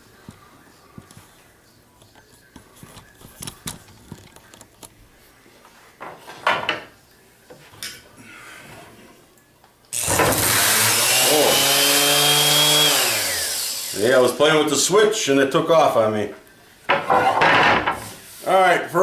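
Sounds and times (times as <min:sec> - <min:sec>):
random orbital sander running: 0:10.0 - 0:14.4.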